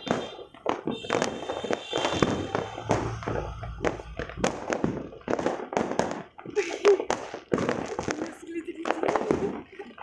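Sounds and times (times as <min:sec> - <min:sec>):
fireworks cracking and banging: 0:00.0 - 0:10.0
low rumble of bursts: 0:02.4 - 0:05.3.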